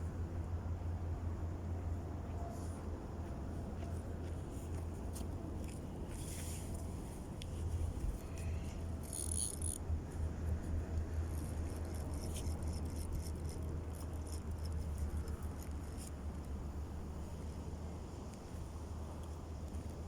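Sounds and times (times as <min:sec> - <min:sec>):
light clicks and rattles: 0:03.2 - 0:16.6.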